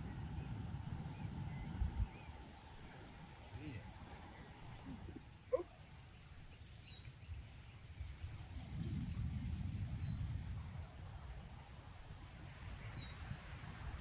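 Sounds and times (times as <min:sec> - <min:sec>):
low rumbling noise: 0:00.0 - 0:05.6
outdoor ambience: 0:00.0 - 0:14.0
songbird call: 0:03.3 - 0:03.8, 0:04.8 - 0:07.8, 0:12.8 - 0:13.2.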